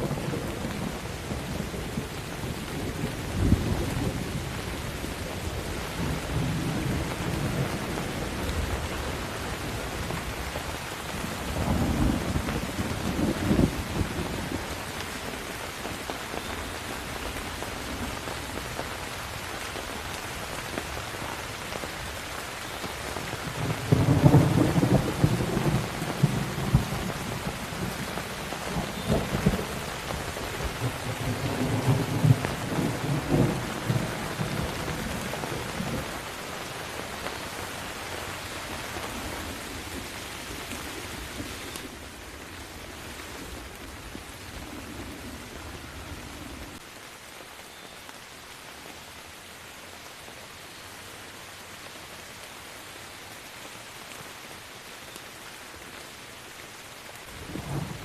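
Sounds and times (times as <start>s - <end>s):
thunder rumbling: 0.0s - 16.0s, 23.2s - 37.8s, 57.3s - 58.0s
rain falling: 0.0s - 58.0s.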